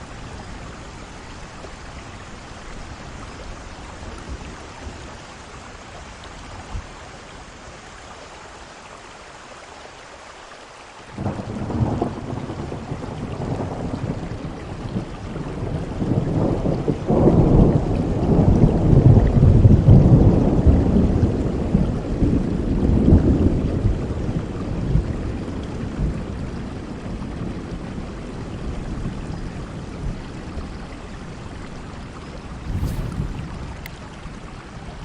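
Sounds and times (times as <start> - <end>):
steady rain: 0.0 - 35.0
thunder rumbling: 32.6 - 34.2.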